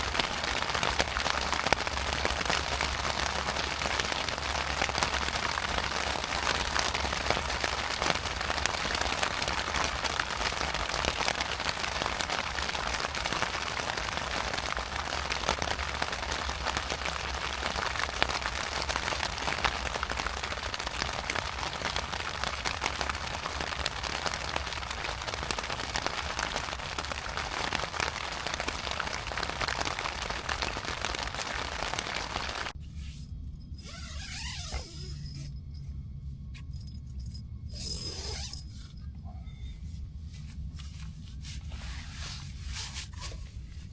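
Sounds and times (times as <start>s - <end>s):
rain pattering: 0.0s - 32.8s.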